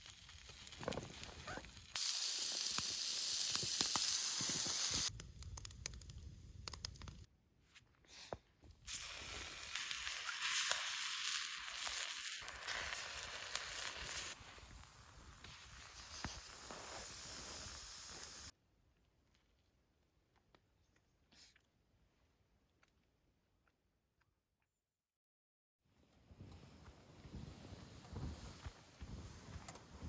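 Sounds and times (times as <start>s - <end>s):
food sizzling in a frying pan: 0.0s - 5.1s, 8.9s - 18.5s.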